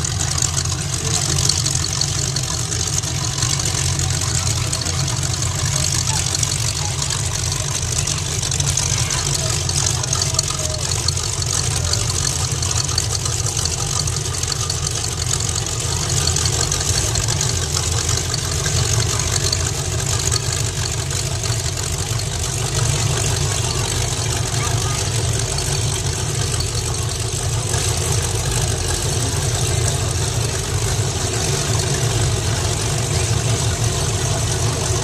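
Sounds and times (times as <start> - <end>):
cars rolling past low engine: 0.0 - 35.0.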